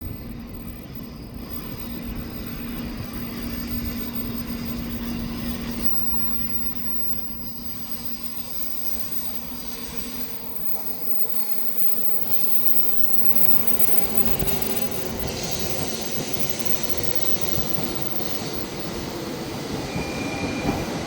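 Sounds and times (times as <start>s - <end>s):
train rumbling with low hum: 0.0s - 21.0s
higher hum: 0.1s - 19.4s.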